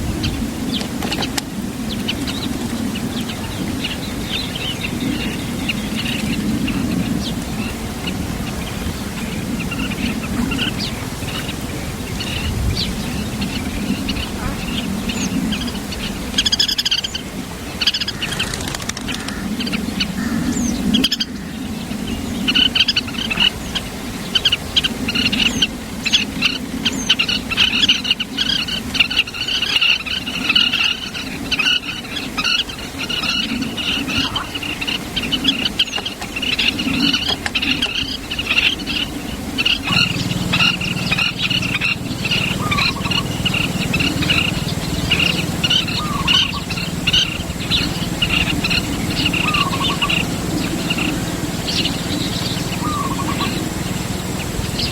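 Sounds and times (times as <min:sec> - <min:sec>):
birds chirping: 0:00.0 - 0:54.9
low background hum: 0:33.2 - 0:54.9
steady low drone: 0:39.2 - 0:54.9.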